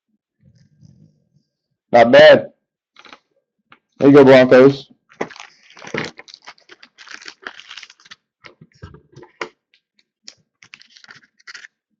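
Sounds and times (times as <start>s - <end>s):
cards clicking and rustling: 3.0s - 3.2s, 5.2s - 9.6s, 10.3s - 11.8s.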